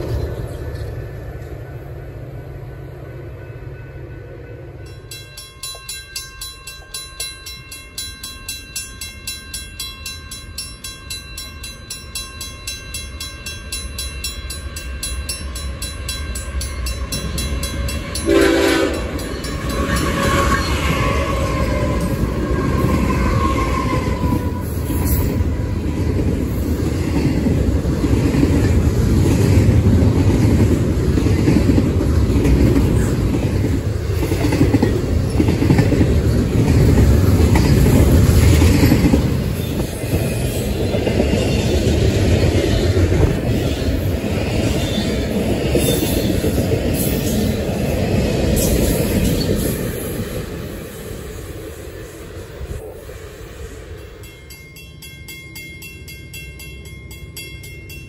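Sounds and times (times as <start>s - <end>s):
freight train rumbling past: 0.0s - 58.0s
crossing bell ringing: 2.3s - 26.0s, 53.8s - 58.0s
locomotive horn blast: 18.2s - 19.2s.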